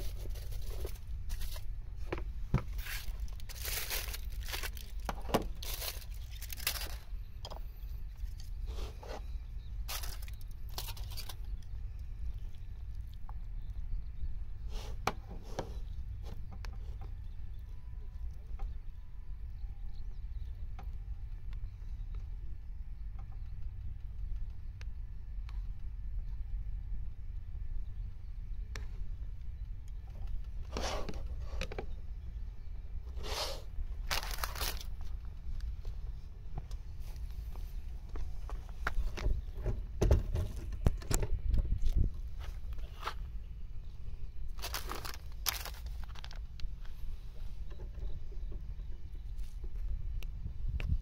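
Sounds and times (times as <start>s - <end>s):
steady low rumble: 0.0s - 14.7s, 15.7s - 51.0s
plastic packet crinkling: 2.8s - 7.1s, 9.9s - 11.4s, 34.0s - 35.0s, 44.6s - 46.5s.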